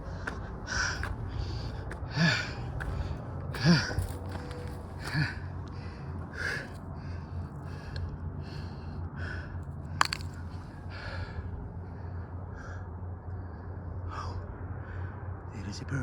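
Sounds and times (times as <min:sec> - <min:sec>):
man panting: 0:00.0 - 0:09.6
low steady rumble: 0:00.0 - 0:16.0.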